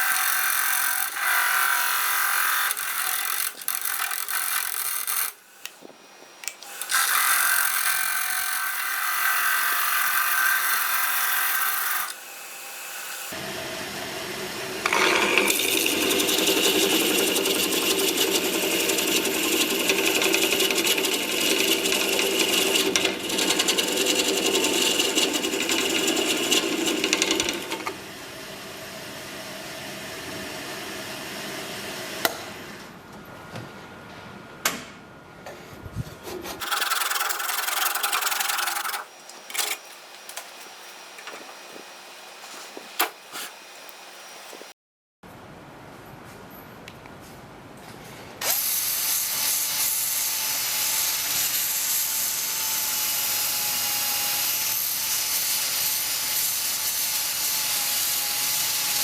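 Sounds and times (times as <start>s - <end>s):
wood lathe spinning: 0.0s - 5.8s, 6.5s - 12.2s, 14.7s - 28.0s, 36.6s - 44.7s
tool rubbing spinning wood: 14.8s - 28.0s, 36.2s - 44.7s.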